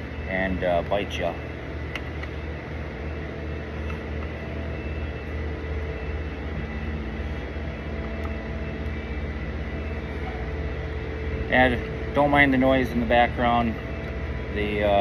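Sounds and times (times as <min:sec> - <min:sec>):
heavy road machinery rumbling: 0:00.0 - 0:15.0.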